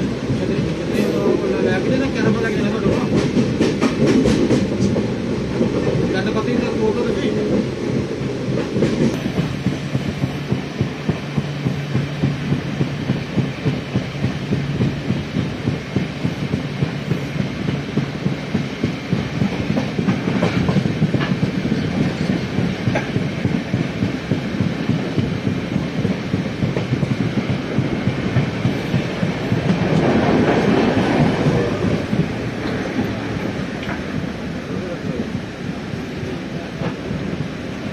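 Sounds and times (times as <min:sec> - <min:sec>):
clickety-clack over rail joints: 0:00.0 - 0:37.9
train wheels rumbling: 0:00.0 - 0:37.9.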